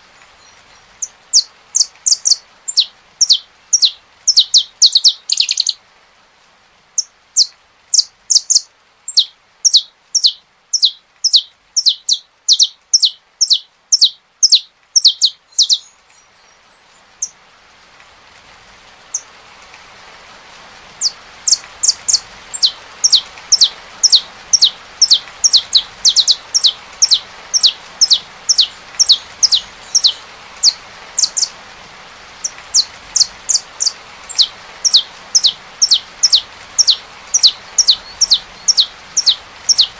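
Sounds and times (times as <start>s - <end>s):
steady rain: 0.0s - 39.9s
finch singing sharp falling notes: 1.4s - 5.8s, 7.4s - 15.9s, 21.0s - 31.5s, 32.4s - 39.9s.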